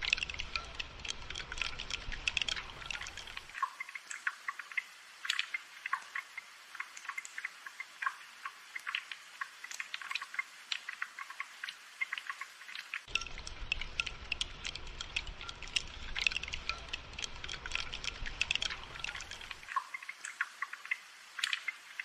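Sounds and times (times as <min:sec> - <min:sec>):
raindrops ticking and dripping: 0:00.0 - 0:22.0.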